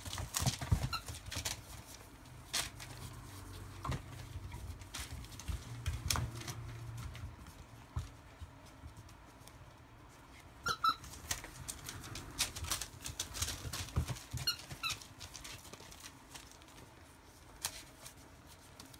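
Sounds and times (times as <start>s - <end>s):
puppies squeaking: 0.5s - 1.6s, 10.6s - 11.2s, 14.3s - 15.2s.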